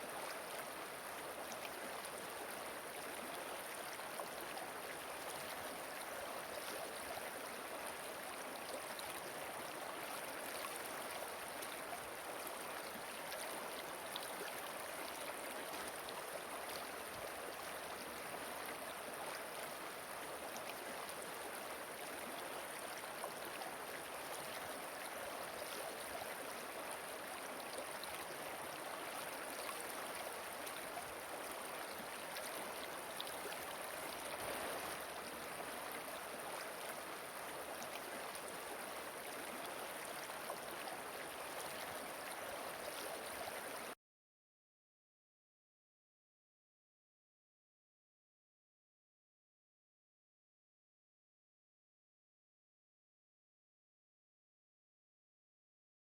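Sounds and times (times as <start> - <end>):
river water rushing: 27.2 - 43.9.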